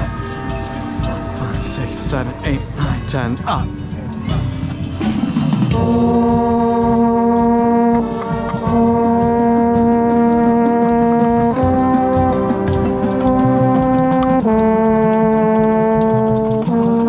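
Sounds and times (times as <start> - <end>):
brass section playing chords: 0.0 - 17.0
trombone slide: 0.0 - 17.0.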